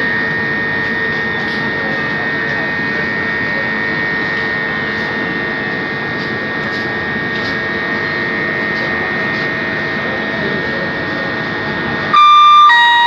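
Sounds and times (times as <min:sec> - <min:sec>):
constant high whine: 0:00.0 - 0:13.0
train rumbling: 0:00.0 - 0:13.0.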